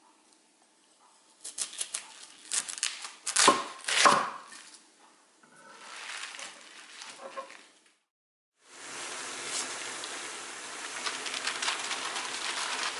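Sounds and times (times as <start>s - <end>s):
knife chopping on cutting board: 3.3s - 4.5s.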